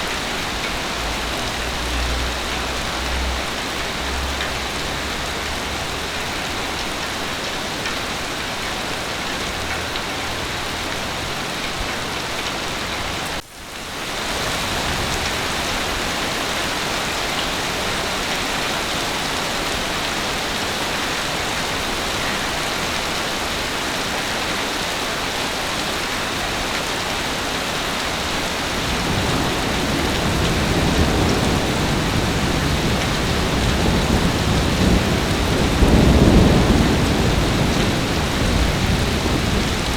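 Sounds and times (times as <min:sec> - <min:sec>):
heavy rain falling: 0:00.0 - 0:39.9
low rumble of thunder: 0:28.2 - 0:39.9.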